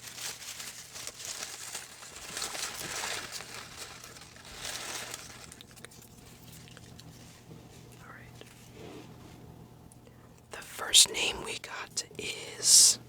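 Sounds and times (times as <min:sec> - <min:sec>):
paper slips rustling: 0:00.0 - 0:07.2.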